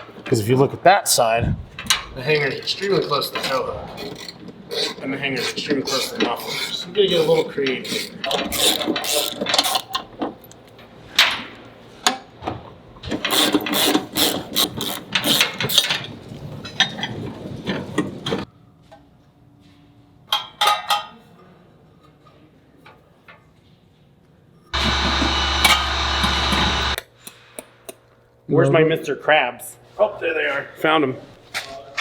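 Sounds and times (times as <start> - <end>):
ratchet wrench clicking: 8.5 - 9.9, 13.1 - 16.0.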